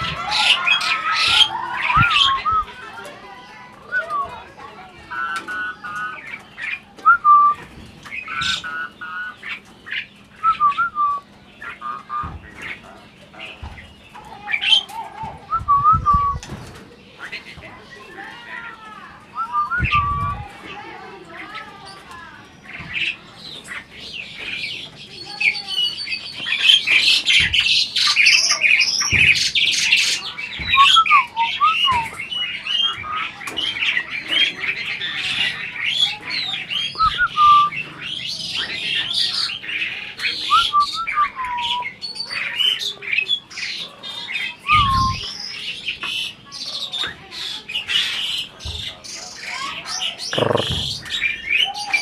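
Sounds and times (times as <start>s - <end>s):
starling singing: 0.0s - 3.0s, 3.9s - 12.8s, 19.3s - 20.6s, 21.9s - 46.7s, 47.8s - 52.0s.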